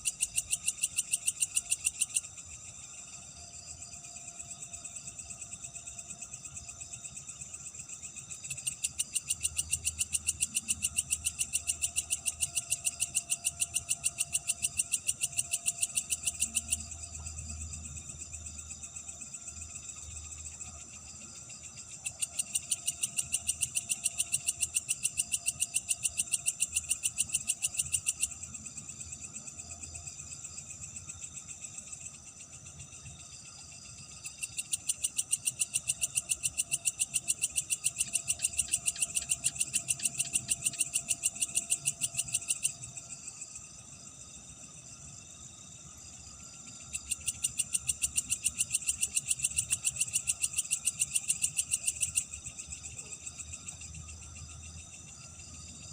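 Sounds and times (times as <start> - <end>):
crickets trilling: 0.0 - 55.9.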